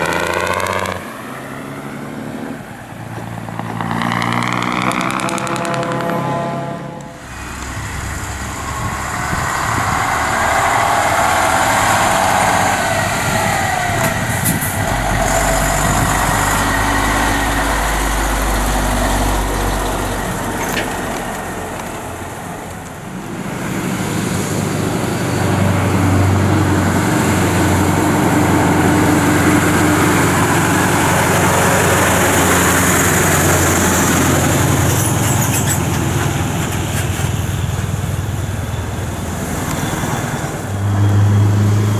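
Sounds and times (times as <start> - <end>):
lorries passing: 0.0 - 41.9.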